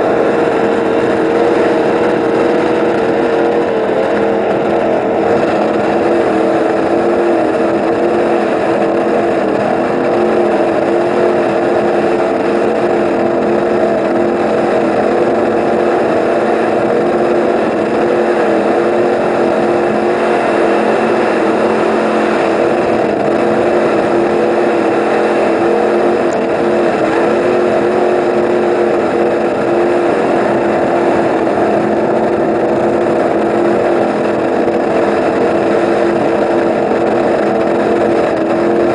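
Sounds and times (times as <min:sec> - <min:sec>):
powerboat engines running: 0:00.0 - 0:38.9.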